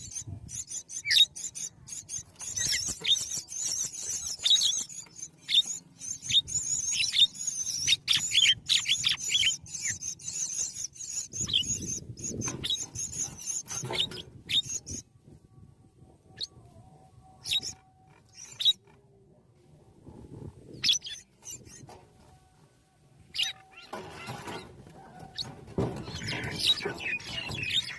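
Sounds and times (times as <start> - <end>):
nestlings squeaking: 0.0 - 15.0, 23.3 - 27.9.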